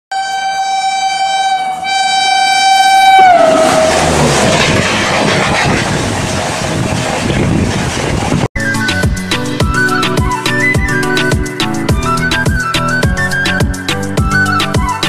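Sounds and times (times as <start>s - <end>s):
diesel locomotive horn blast: 0.1s - 7.2s
train coaches rumbling past: 0.2s - 8.5s.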